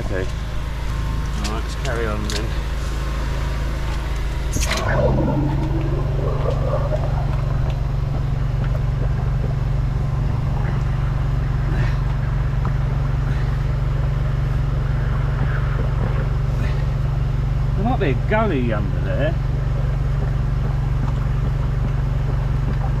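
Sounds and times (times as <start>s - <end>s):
engine and pump humming: 0.0s - 23.0s
brief rising tone: 4.6s - 8.3s.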